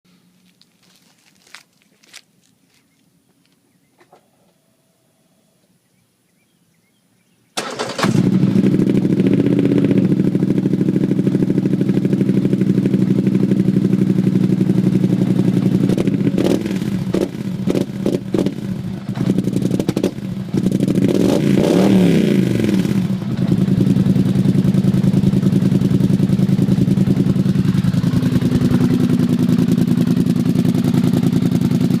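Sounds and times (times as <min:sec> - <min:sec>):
atv engine idling and revving: 0:07.6 - 0:32.0.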